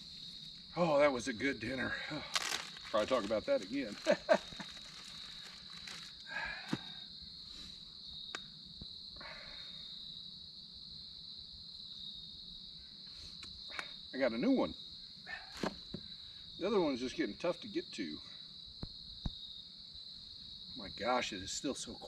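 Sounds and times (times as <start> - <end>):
crickets trilling: 0.0 - 22.0
rustling: 2.3 - 6.9.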